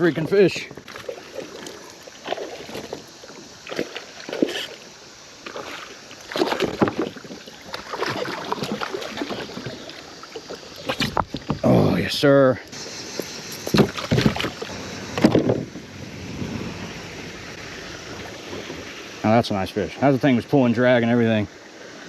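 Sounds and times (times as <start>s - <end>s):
water splashing and sloshing: 0.0s - 22.0s.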